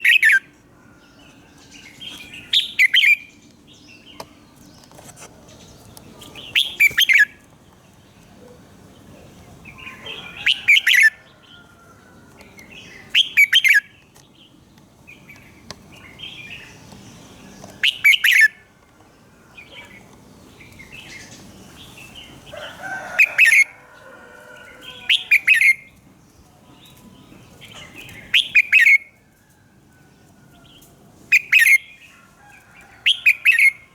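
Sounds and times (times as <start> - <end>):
bulbul singing warbled phrases: 6.2 - 7.4, 12.6 - 14.0, 15.1 - 18.6, 24.6 - 26.0.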